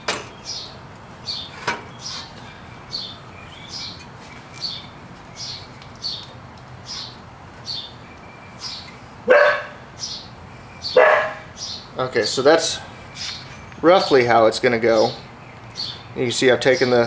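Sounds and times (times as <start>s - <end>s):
sharp metal knocks: 0.0s - 0.4s
bird chirping: 0.0s - 17.0s.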